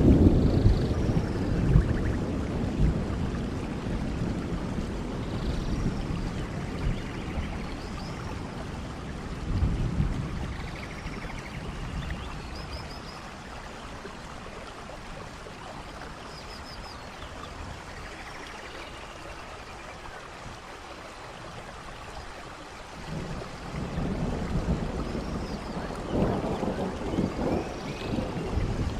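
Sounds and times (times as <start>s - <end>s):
rain: 0.0s - 28.9s.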